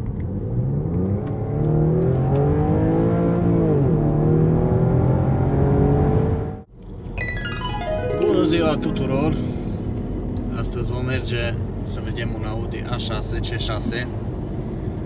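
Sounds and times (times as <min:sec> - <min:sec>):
car engine accelerating: 0:00.3 - 0:06.7.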